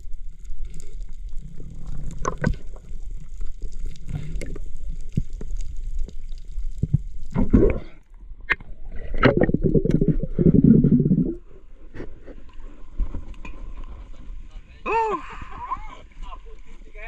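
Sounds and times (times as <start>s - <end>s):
water splashing and gurgling: 0.0s - 11.9s.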